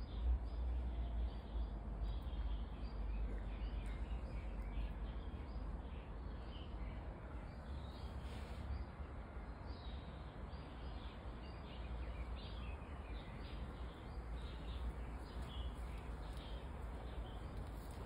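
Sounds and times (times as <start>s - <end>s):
low outdoor rumble: 0.0s - 18.0s
small birds chirping: 0.0s - 18.0s.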